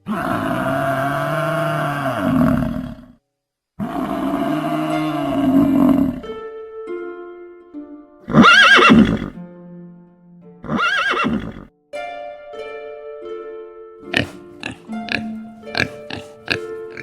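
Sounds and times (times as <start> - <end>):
plucked background music: 4.6 - 17.0
horse whinnying: 8.3 - 9.4, 10.6 - 11.7.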